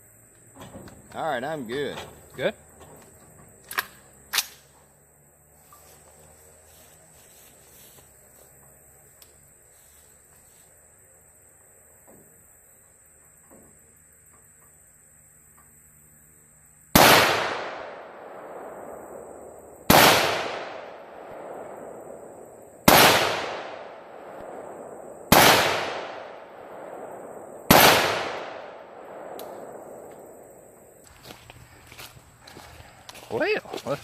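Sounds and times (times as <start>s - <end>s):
rifle shots with echo: 17.0s - 30.1s.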